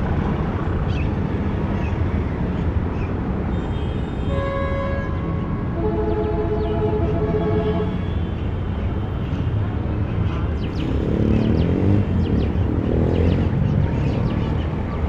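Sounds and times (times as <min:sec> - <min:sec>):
traffic rumble: 0:00.0 - 0:15.0
vehicle engine passing by: 0:10.8 - 0:14.7.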